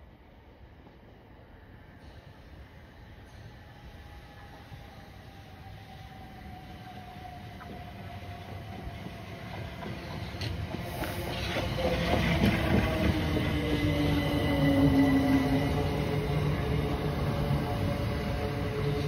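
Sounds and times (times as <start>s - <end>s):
electric train rumble: 0.0s - 19.0s
carriages humming: 7.1s - 19.0s.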